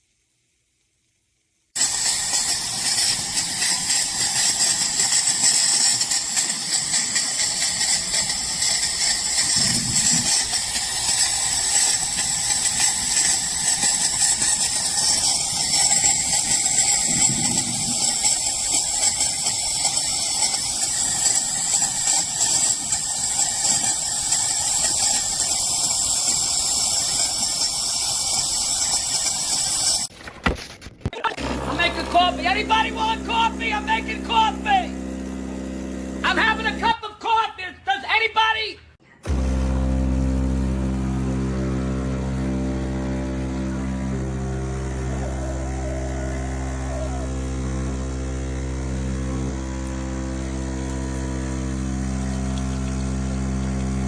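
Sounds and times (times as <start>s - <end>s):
espresso machine steam wand hissing: 1.8s - 30.1s, 39.2s - 54.0s.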